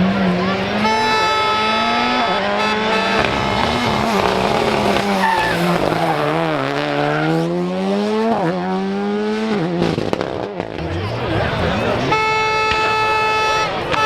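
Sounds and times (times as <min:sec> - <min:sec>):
rally car engine revving: 0:00.0 - 0:14.0
tyres squealing and skidding: 0:00.2 - 0:07.6.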